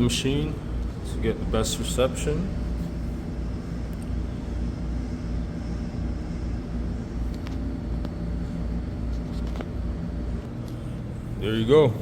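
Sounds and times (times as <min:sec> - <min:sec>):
vending machine hum: 0:00.0 - 0:12.0.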